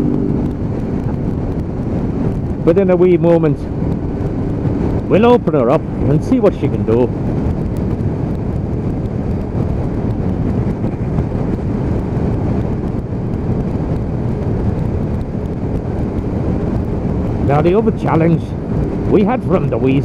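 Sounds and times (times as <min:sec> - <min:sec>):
motorcycle engine running: 0:00.0 - 0:06.2
wind rush on microphone: 0:00.0 - 0:20.0.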